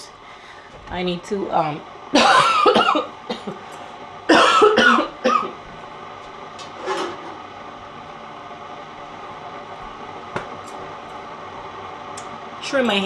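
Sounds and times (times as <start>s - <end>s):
steady low hum: 0.0s - 13.0s
woman coughing: 2.2s - 3.6s, 4.3s - 5.6s.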